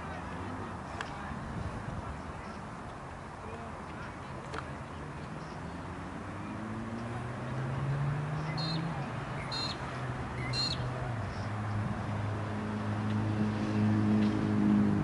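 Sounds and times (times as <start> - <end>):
vehicle engine hum: 0.0 - 15.0
high bird chirps: 8.4 - 8.8, 9.4 - 9.8, 10.4 - 10.9.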